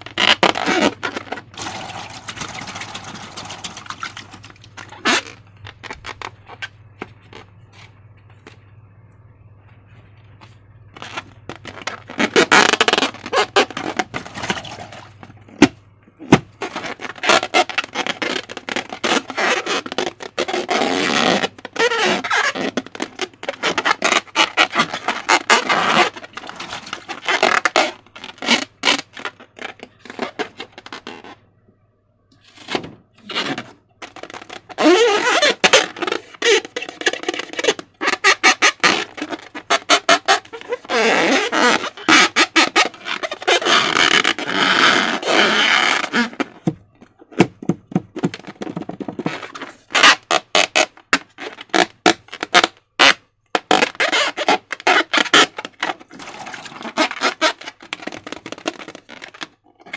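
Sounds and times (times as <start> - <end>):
stretchy slime squeaks: 0.0 - 7.5, 10.9 - 31.5, 32.5 - 59.9
slime squelching: 0.2 - 7.4, 10.9 - 19.7.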